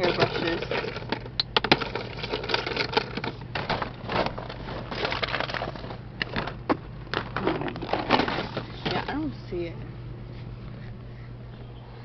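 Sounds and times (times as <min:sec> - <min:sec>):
household objects clattering: 0:00.0 - 0:09.3.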